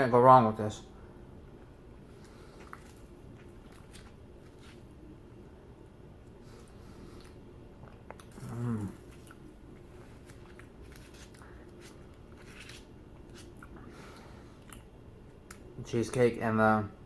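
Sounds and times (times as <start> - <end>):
person chewing with mouth clicks: 2.2 - 4.8, 6.6 - 12.1, 14.6 - 15.7.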